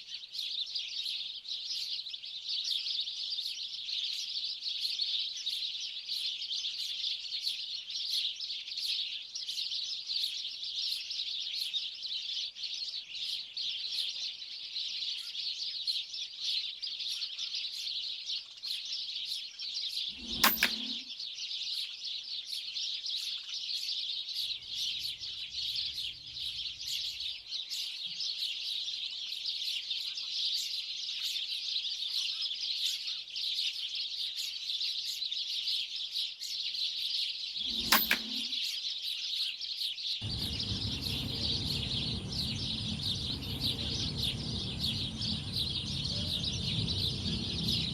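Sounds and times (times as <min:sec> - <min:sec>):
air rifle shot: 0:37.6 - 0:38.5
flock of birds chirping: 0:40.2 - 0:47.9.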